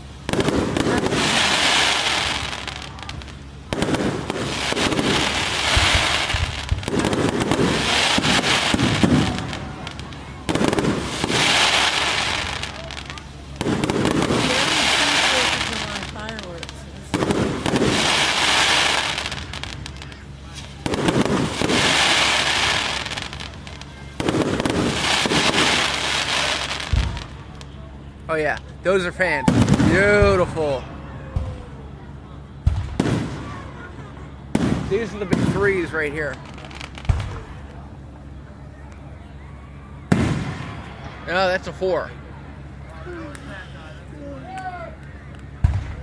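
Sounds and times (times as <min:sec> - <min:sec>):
firework crackling and hissing: 0:00.0 - 0:30.8, 0:32.7 - 0:39.1
firework bang: 0:00.3 - 0:27.5, 0:29.4 - 0:30.6, 0:32.6 - 0:33.8, 0:34.5 - 0:37.6, 0:40.1 - 0:41.0, 0:45.6 - 0:46.0.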